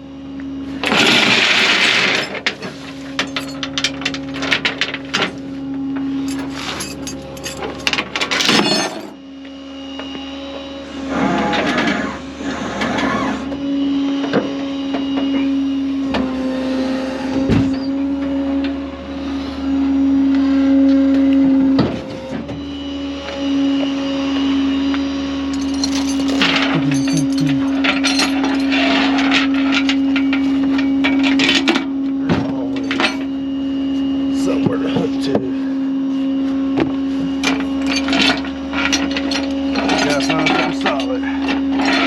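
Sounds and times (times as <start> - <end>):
tow truck machinery whine: 0.0 - 42.0
chains and hooks clanking: 3.2 - 5.0, 6.3 - 9.2, 25.5 - 29.4, 32.8 - 33.3, 37.8 - 41.2
machinery rattling: 6.3 - 9.2, 25.5 - 29.5
truck engine humming: 25.3 - 28.7
sharp metallic clanks: 25.6 - 28.7.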